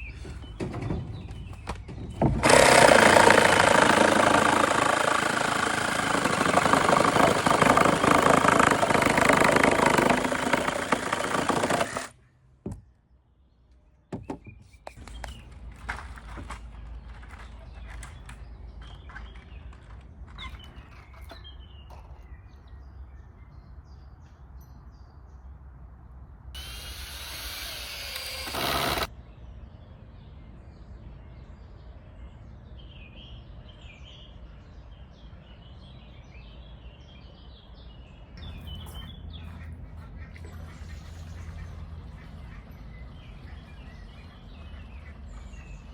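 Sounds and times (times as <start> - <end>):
small birds chirping: 16.5 - 25.3, 26.6 - 45.9.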